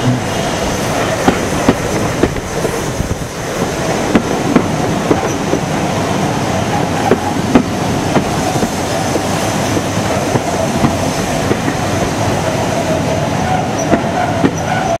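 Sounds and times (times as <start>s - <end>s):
train wheels rumbling on rail: 0.0s - 15.0s
thin wavering wheel squeal: 12.4s - 15.0s.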